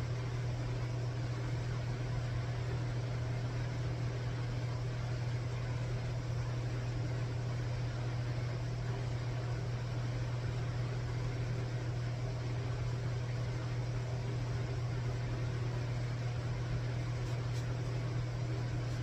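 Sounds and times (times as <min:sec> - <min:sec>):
low machine hum: 0:00.0 - 0:19.0
constant hiss: 0:15.0 - 0:19.0.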